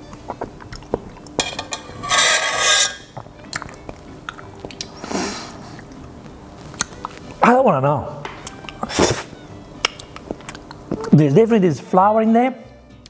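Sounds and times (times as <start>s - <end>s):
man chewing: 0.0s - 1.4s, 3.2s - 7.4s, 8.4s - 11.1s
breathy sound of disgust: 4.9s - 5.9s.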